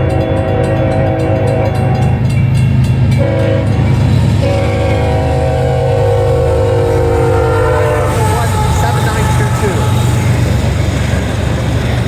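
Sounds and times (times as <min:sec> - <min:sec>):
train air horn blasts: 0:00.0 - 0:02.2, 0:03.2 - 0:10.6
passing train rumble: 0:00.0 - 0:12.0.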